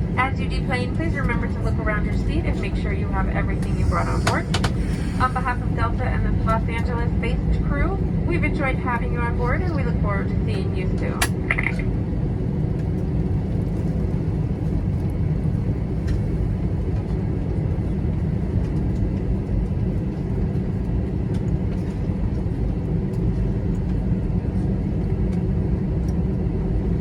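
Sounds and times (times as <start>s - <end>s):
faint steady hum: 0.0s - 12.1s
aircraft cabin rumble: 0.0s - 27.0s.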